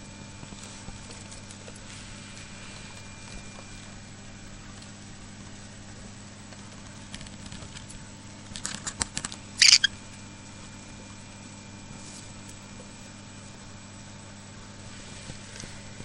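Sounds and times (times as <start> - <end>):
electrical hum: 0.0 - 16.0
harsh bird call: 9.6 - 9.9.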